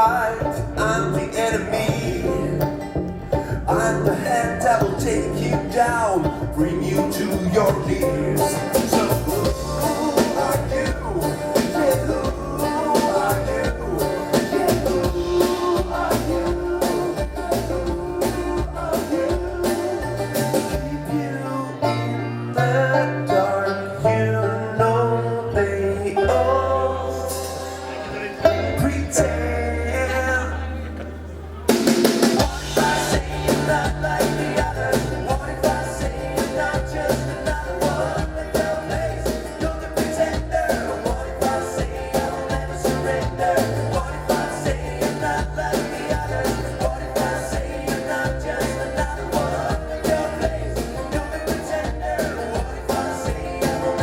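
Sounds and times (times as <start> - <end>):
bass line: 0.0 - 54.0
live band playing bluegrass rock: 0.0 - 54.0
plucked string instruments: 0.0 - 54.0
drum kit beat: 3.8 - 21.1, 31.7 - 54.0.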